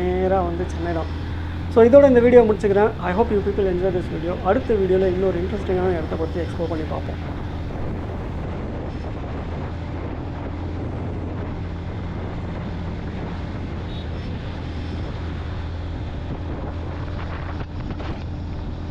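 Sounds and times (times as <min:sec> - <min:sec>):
motorcycle engine running: 0:00.0 - 0:08.4
wind noise on microphone: 0:00.0 - 0:18.9.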